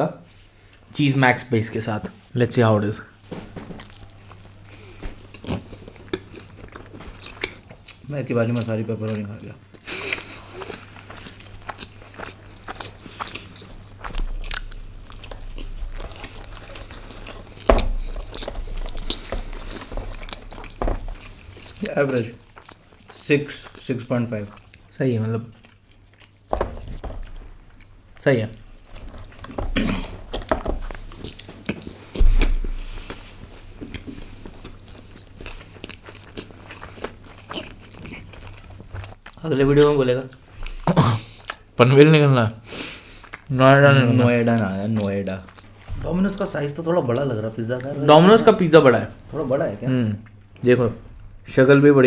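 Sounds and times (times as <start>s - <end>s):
small crunches: 3.4s - 8.0s, 10.0s - 24.9s
chewing and biting food: 3.7s - 41.7s, 43.0s - 43.6s, 44.2s - 47.9s
thump: 32.2s - 32.7s.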